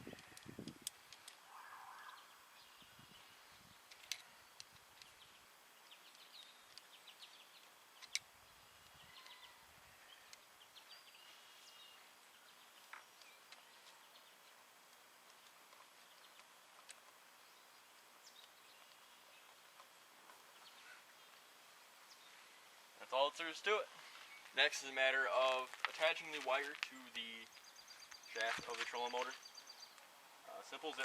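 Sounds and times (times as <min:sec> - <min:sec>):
faint birds chirping: 0:00.0 - 0:31.0
sharp clicks: 0:07.6 - 0:09.4.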